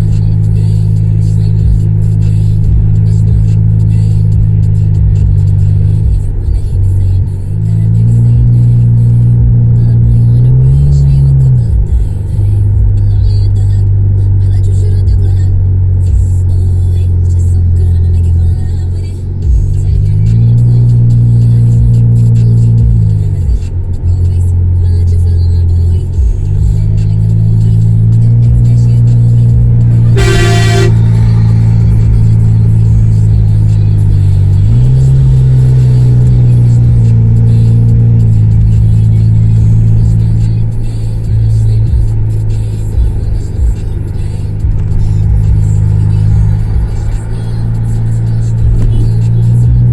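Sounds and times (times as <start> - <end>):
loud car engine drone revving: 0.0 - 49.9
car horn honk: 26.4 - 40.8.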